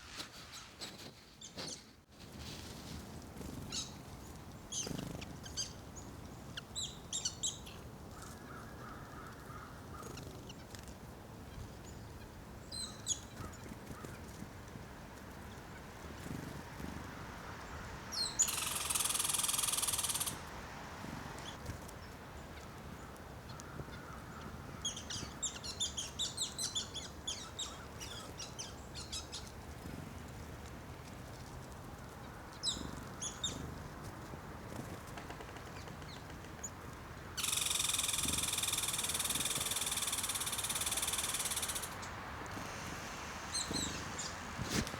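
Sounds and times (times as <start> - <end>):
faint outdoor background: 0.0 - 44.9
small songbirds chirping: 3.4 - 10.9, 11.5 - 14.4, 15.2 - 20.4, 21.0 - 44.9
steady high hiss: 18.1 - 20.8, 37.4 - 44.9.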